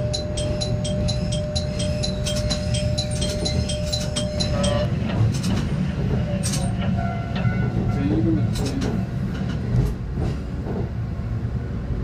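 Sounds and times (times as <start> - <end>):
level crossing warning bell: 0.0 - 5.2
train rumbling on track: 0.0 - 12.0.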